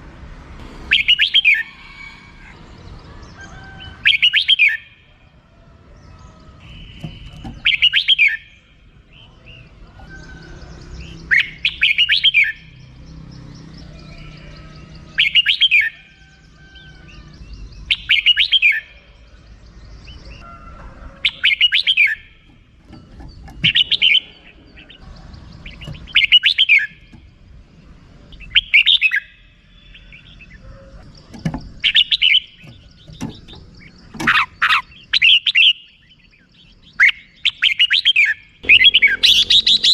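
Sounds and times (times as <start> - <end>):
bird chattering calls: 0.8 - 1.7, 6.6 - 8.8, 11.0 - 12.9, 21.2 - 27.2, 28.3 - 39.9.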